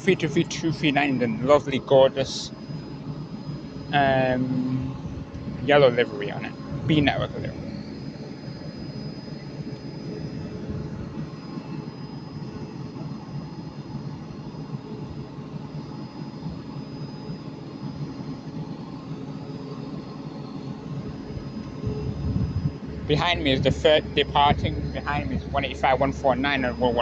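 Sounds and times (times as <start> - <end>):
train equipment humming: 0.0 - 13.2, 18.8 - 27.0
high steady whining tones: 0.0 - 27.0.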